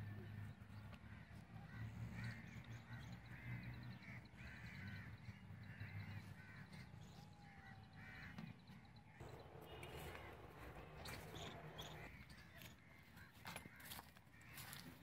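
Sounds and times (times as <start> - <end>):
low steady hum: 9.1 - 12.2.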